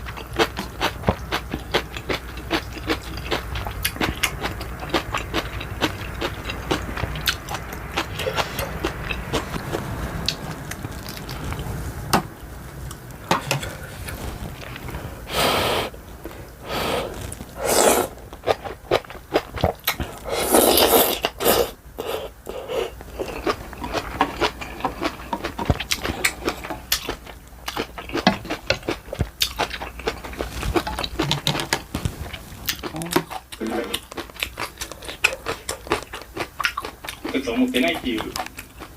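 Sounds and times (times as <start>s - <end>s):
wet chewing: 0.0s - 11.8s, 16.6s - 38.9s
noodle slurps: 16.6s - 18.7s, 20.0s - 23.0s.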